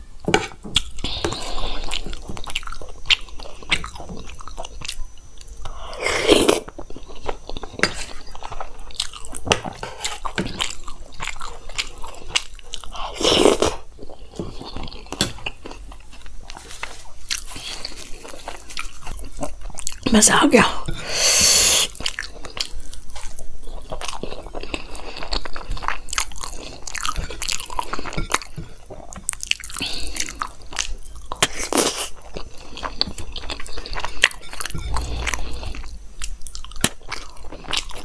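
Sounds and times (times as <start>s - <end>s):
crunchy food being chewed: 0.4s - 20.1s, 20.9s - 38.0s
spoon scraping a steel bowl: 34.2s - 35.9s
loud mouth sounds: 34.8s - 35.8s.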